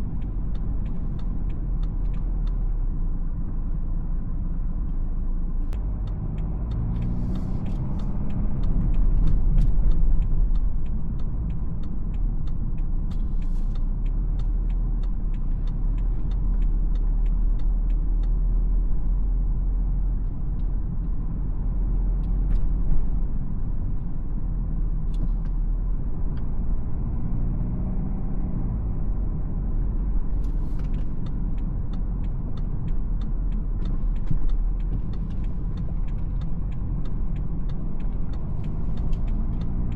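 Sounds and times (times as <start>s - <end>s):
diesel car engine and road noise: 0.0s - 39.9s
light clicks: 30.3s - 39.9s.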